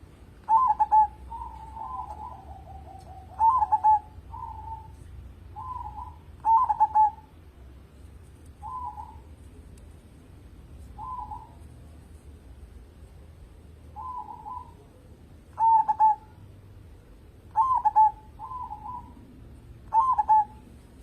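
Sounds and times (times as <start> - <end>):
dove cooing: 0.0 - 7.3, 8.6 - 9.4, 10.9 - 11.7, 13.9 - 21.0.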